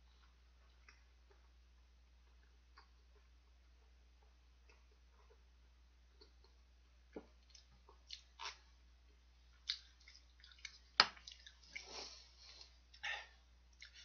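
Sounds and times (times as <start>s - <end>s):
person chewing noodles: 6.1s - 14.0s.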